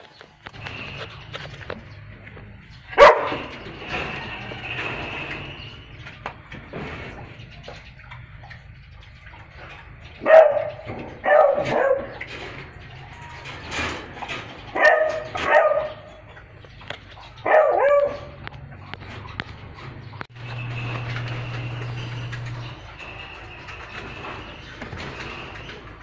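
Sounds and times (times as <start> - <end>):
dog barking: 3.0 - 3.5, 10.2 - 12.2, 14.7 - 16.1, 17.4 - 18.4.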